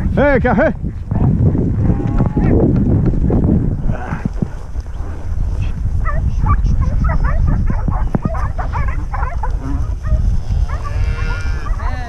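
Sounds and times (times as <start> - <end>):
dogs barking and yipping: 6.0 - 12.0.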